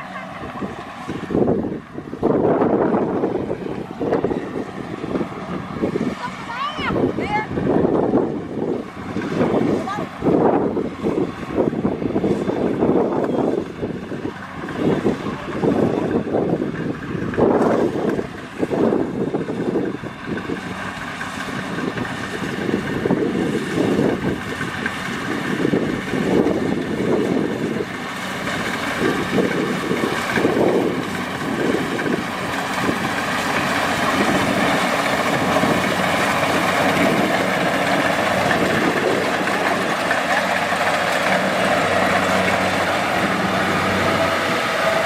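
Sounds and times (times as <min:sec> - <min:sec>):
combine harvester engine humming: 0:00.0 - 0:45.0.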